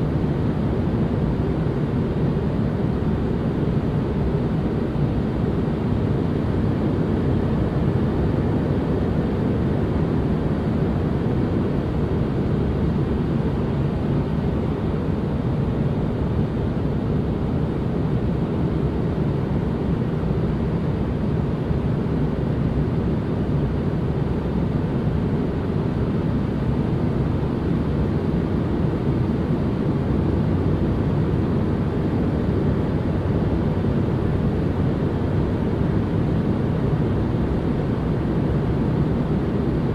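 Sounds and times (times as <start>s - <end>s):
deep white noise: 0.0s - 39.9s.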